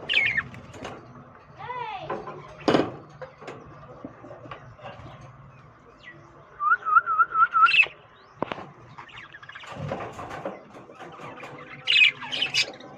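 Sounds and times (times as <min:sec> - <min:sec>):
scratchy bird chatter: 0:00.0 - 0:01.6, 0:07.7 - 0:12.9
lovebirds chirping: 0:00.0 - 0:12.9.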